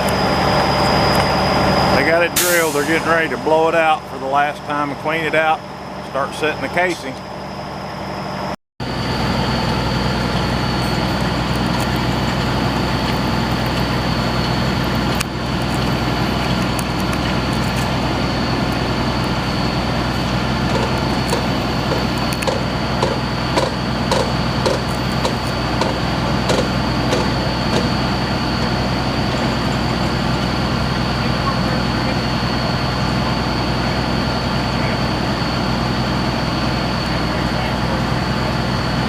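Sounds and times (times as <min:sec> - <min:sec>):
drilling rig engine hum and whine: 0:00.0 - 0:39.0.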